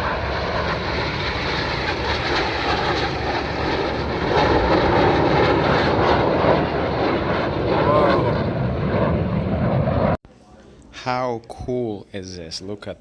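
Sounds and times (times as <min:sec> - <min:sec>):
jet aircraft taking off: 0:00.0 - 0:10.2.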